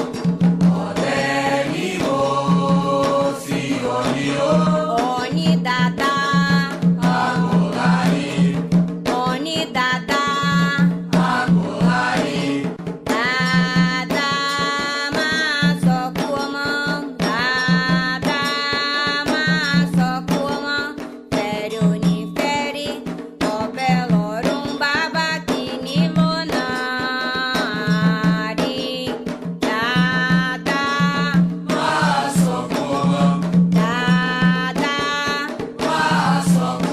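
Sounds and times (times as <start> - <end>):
hand drums and percussion: 0.0 - 36.9
people chanting: 0.6 - 5.5, 7.0 - 8.6, 11.2 - 12.7, 31.7 - 36.9.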